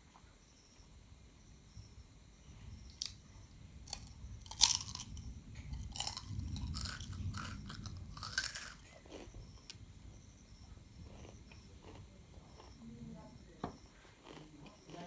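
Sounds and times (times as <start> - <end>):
chewing: 3.9 - 9.8, 11.0 - 12.9, 13.9 - 15.0
crunching bites: 3.9 - 9.8, 11.0 - 12.8, 14.2 - 15.0.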